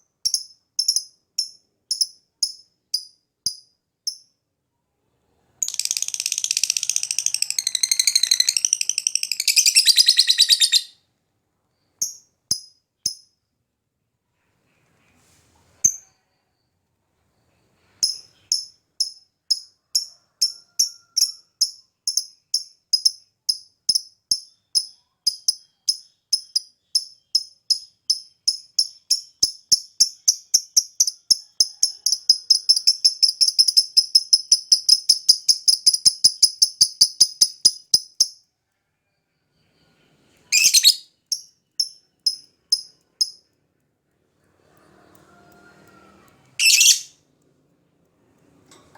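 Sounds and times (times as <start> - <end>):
bird chirping and trilling: 5.6 - 10.9, 40.5 - 43.4, 46.6 - 47.2
bird harsh screech: 46.6 - 47.1.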